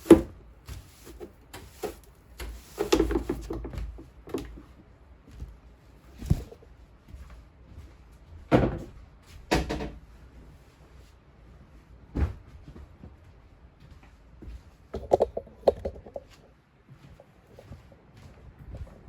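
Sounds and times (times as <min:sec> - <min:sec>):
household knocks and bumps: 0:06.2 - 0:06.6, 0:15.0 - 0:16.2.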